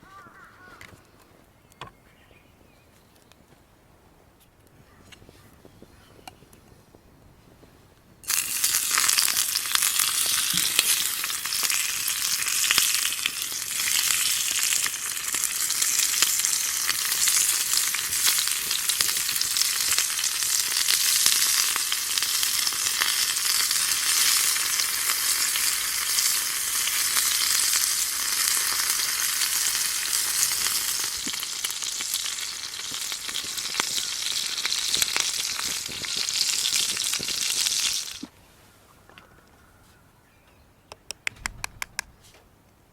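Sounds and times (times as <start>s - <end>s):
food sizzling in a skillet: 8.3s - 38.3s.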